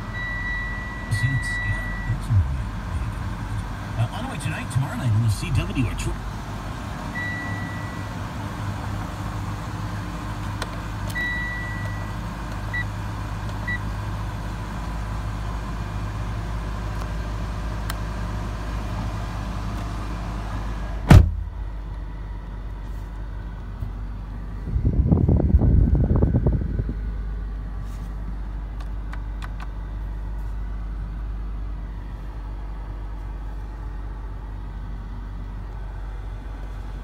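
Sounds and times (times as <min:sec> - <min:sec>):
car engine idling: 0:00.0 - 0:37.0
short high beeps: 0:00.2 - 0:02.2.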